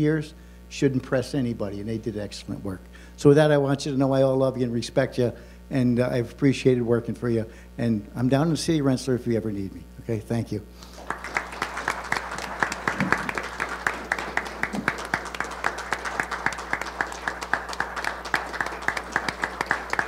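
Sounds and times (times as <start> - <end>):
people clapping: 10.8 - 20.0.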